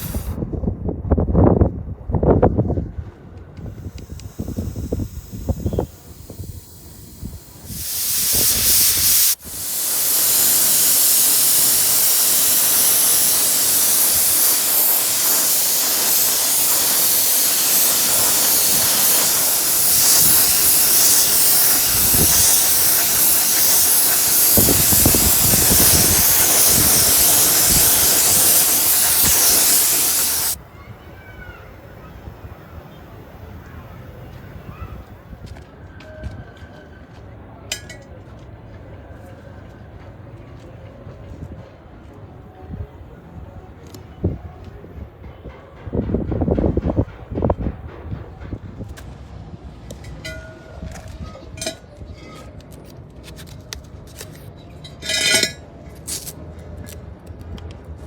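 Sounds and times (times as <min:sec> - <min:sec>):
loud spraying hiss: 0:00.0 - 0:00.4, 0:03.6 - 0:35.1.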